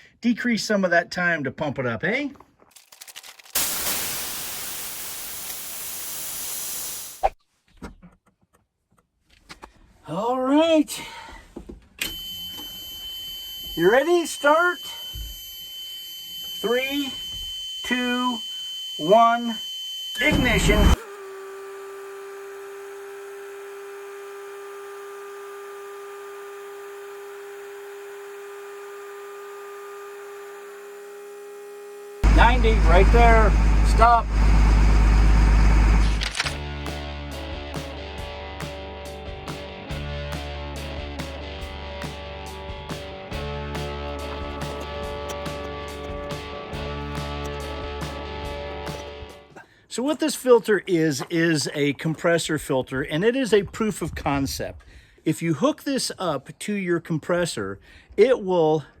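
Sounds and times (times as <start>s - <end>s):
compressed air hissing: 3.6s - 7.3s
electronic warning buzzer: 12.0s - 21.1s.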